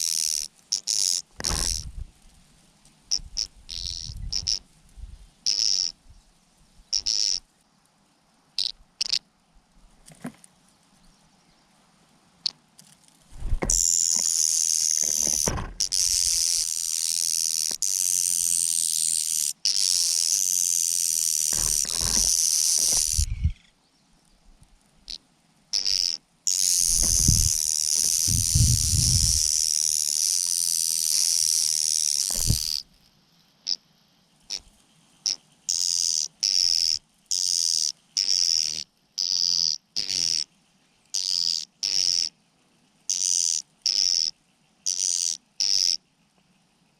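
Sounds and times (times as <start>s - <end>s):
birds hissing begging calls: 3.1s - 4.6s, 21.5s - 23.7s, 25.8s - 30.0s
birds jostling thumps: 13.3s - 13.9s, 21.5s - 23.4s, 26.9s - 29.4s, 32.3s - 32.7s.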